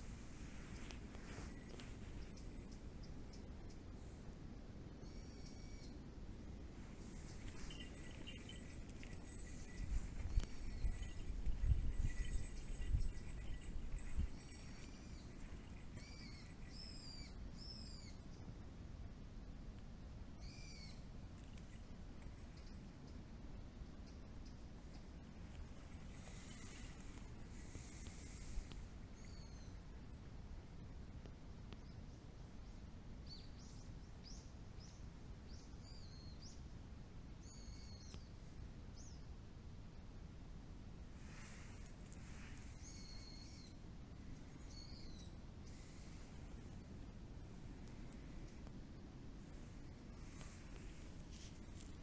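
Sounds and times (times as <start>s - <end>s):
songbirds chirping: 0.0s - 18.6s, 20.4s - 30.3s, 41.2s - 52.0s
faint low rumble: 0.0s - 52.0s
bird whistled calls: 15.9s - 18.2s, 42.8s - 43.8s.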